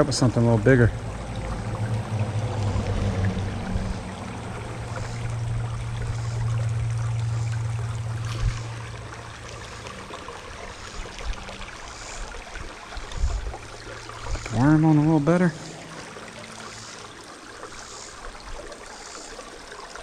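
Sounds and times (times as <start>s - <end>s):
creek water babbling over rocks: 0.0s - 20.0s
highway traffic rumble: 0.0s - 20.0s.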